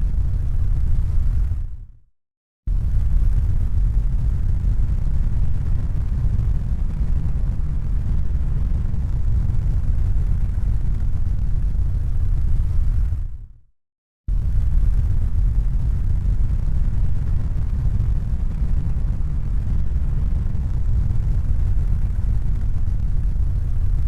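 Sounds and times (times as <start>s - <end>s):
deep rumbling noise: 0.0s - 1.9s, 2.7s - 13.5s, 14.3s - 24.0s.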